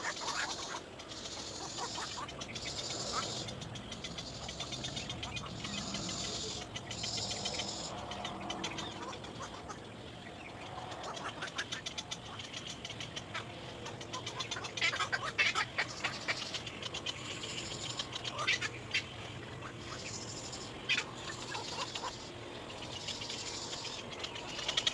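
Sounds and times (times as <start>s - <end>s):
nestling birds chattering: 0.0s - 24.9s.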